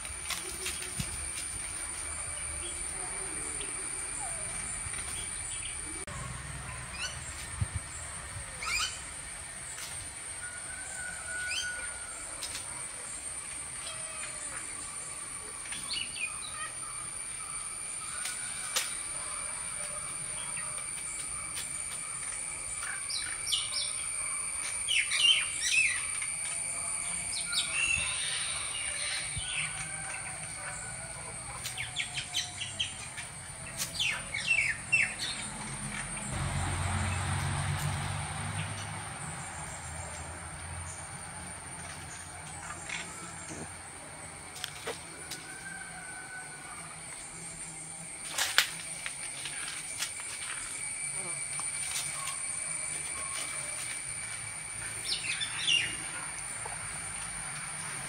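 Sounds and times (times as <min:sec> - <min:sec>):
steady high-pitched whine: 0:00.0 - 0:58.0
birds chirping: 0:02.4 - 0:09.3.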